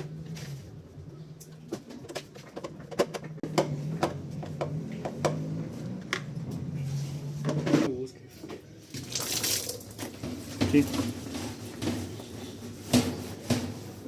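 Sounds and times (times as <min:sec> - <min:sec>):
clicks and knocks of hand work: 0:01.4 - 0:06.4.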